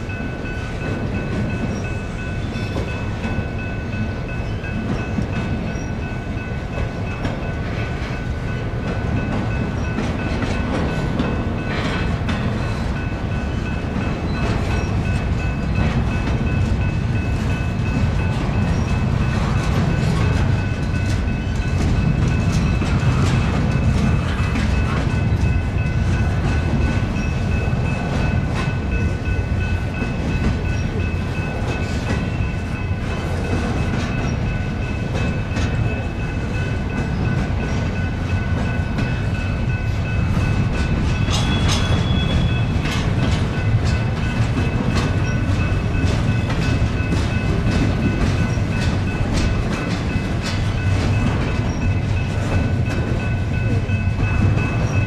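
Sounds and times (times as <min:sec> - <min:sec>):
freight train wheels rumbling: 0:00.0 - 0:55.0
wheels clicking over rail joints: 0:04.4 - 0:55.0
sharp wheel squeal: 0:41.2 - 0:42.7.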